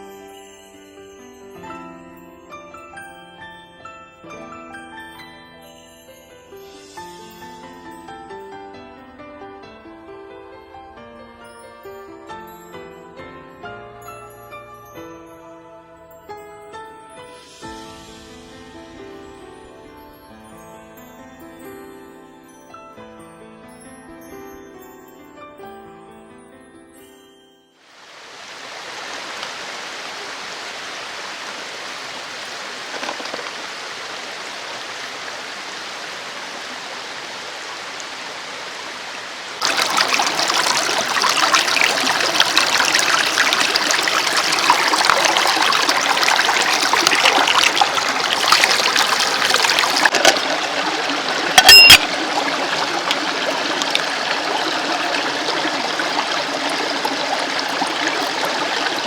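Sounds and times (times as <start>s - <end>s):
stream running over rocks: 27.9s - 59.0s.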